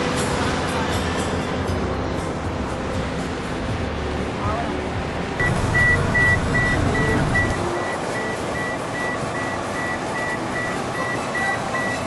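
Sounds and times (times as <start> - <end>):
short high beeps: 5.4 - 12.0.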